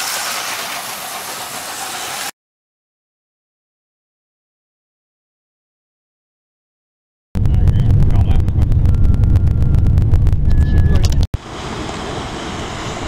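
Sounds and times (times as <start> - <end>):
train passing with deep rumble: 7.4 - 13.0.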